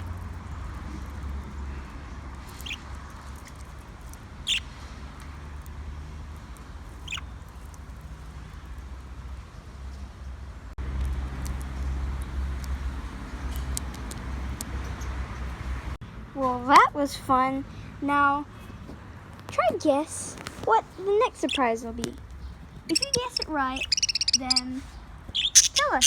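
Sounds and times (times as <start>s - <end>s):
budgerigar chirps: 2.6s - 2.8s, 4.4s - 4.7s, 7.0s - 7.3s, 22.9s - 24.7s, 25.3s - 26.0s.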